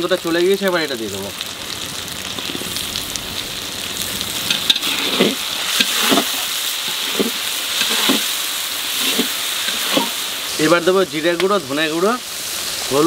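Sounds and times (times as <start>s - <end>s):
chili paste sizzling in oil: 0.0s - 13.0s
spatula scraping a wok: 2.4s - 2.8s, 4.4s - 10.4s.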